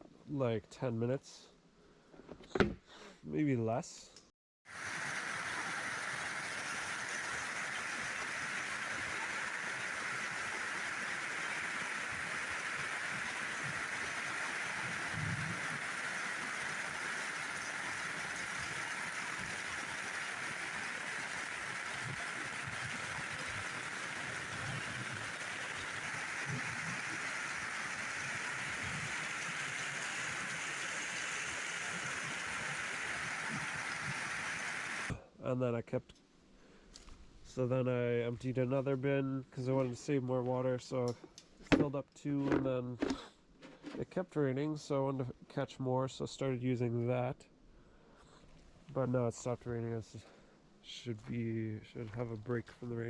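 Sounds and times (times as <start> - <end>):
heavy rain pouring: 4.7 - 35.2.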